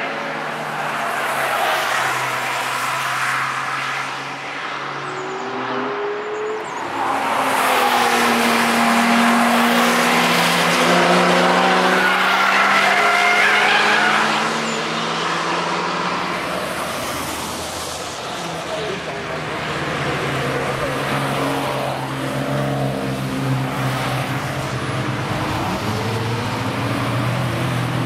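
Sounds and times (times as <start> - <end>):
race car engine passing: 0.5 - 28.0.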